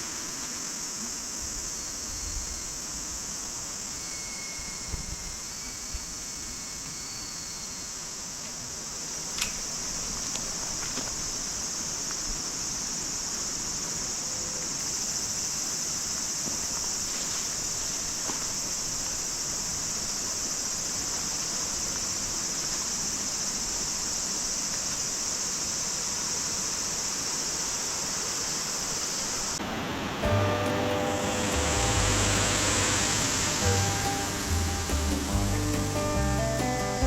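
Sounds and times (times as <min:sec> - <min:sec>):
high-pitched insect chorus: 0:00.0 - 0:37.0
rushing water: 0:17.0 - 0:37.0
music: 0:30.2 - 0:37.0.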